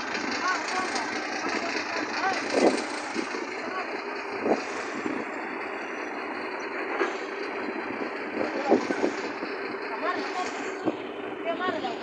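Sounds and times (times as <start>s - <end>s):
heavy vehicle engine under load: 0.0s - 12.0s.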